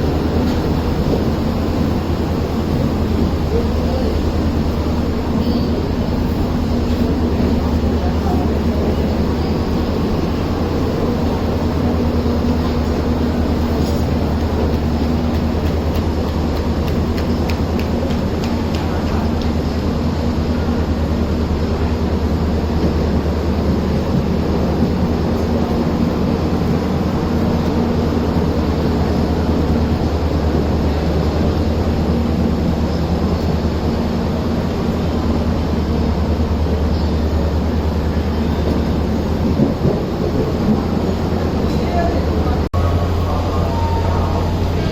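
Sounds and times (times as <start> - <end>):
passenger train rumbling: 0.0 - 44.9.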